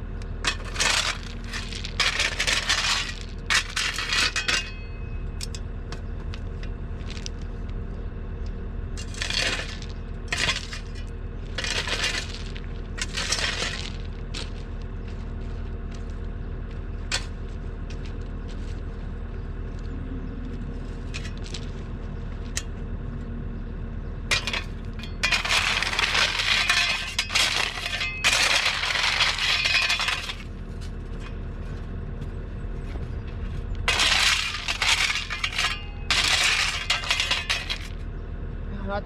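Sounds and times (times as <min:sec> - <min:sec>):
heavy equipment engine running: 0:00.0 - 0:39.0
bucket scraping soil and stones: 0:00.4 - 0:04.6, 0:09.0 - 0:14.6, 0:24.3 - 0:30.6, 0:33.8 - 0:38.0.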